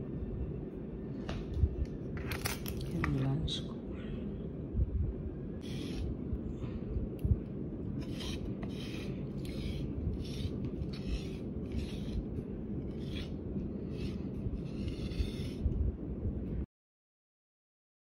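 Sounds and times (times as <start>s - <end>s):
low background rumble: 0.0s - 16.7s.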